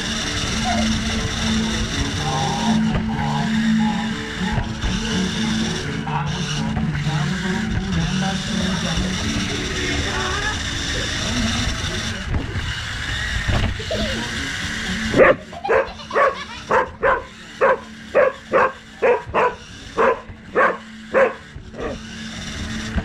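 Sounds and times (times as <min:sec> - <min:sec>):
remote-control car running: 0:00.0 - 0:23.0
dog barking: 0:15.2 - 0:22.0.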